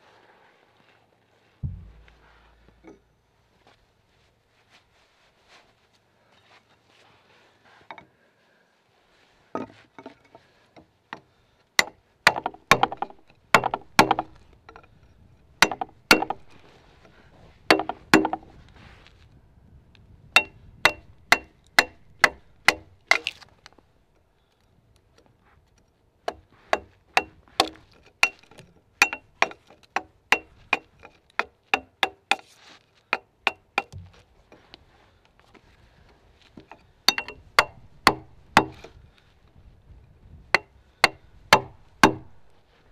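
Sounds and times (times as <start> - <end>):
axe chopping into a log: 11.8 - 14.4, 15.6 - 16.5, 20.4 - 23.4, 37.1 - 38.9, 40.6 - 42.4.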